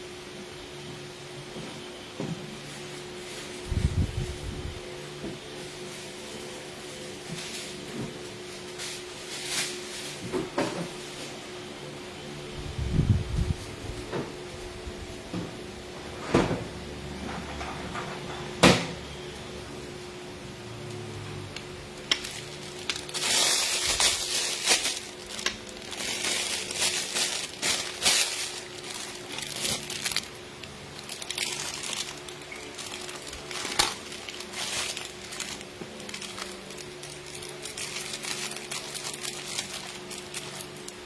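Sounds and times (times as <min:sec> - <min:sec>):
plastic piping bag crinkling: 0:21.9 - 0:41.0.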